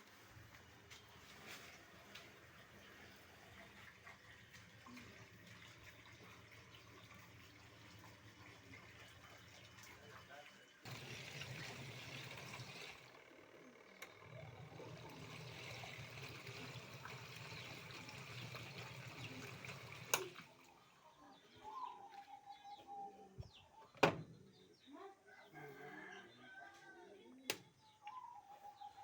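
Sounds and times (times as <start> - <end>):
water running: 0.0 - 13.4, 14.0 - 21.0
birds chirping: 20.7 - 29.0.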